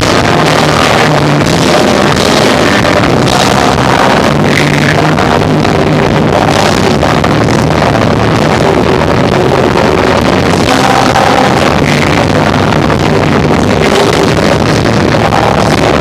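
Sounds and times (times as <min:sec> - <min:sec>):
distorted live rock band: 0:00.0 - 0:16.0.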